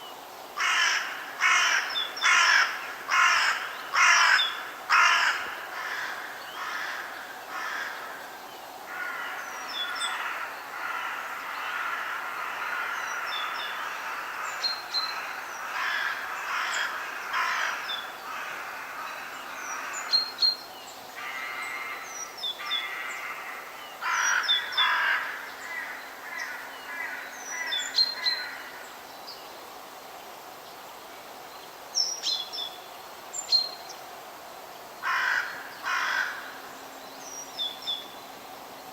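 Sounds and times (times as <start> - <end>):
loud rough bird calls: 0.6 - 8.3, 8.9 - 20.6, 21.2 - 28.9, 35.0 - 36.7.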